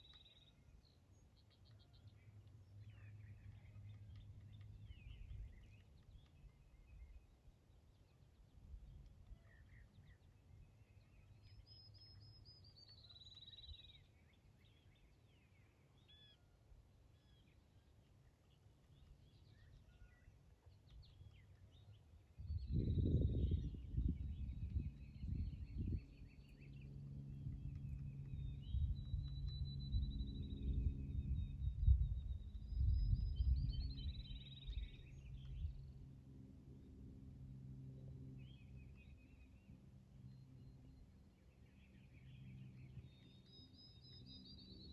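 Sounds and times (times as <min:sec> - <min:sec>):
faint birdsong trill: 0:00.0 - 0:44.9
bird chirps: 0:09.2 - 0:16.4, 0:18.5 - 0:35.9, 0:38.4 - 0:44.9
low rumble: 0:22.5 - 0:36.0.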